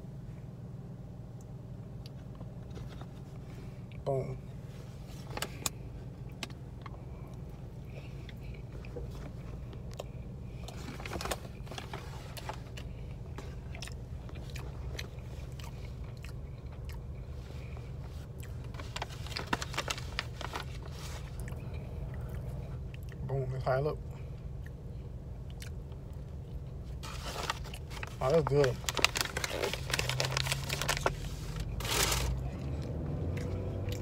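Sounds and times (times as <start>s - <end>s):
low hum of car: 0.0s - 34.0s
chewing crispy fried chicken: 8.2s - 23.3s, 25.4s - 34.0s.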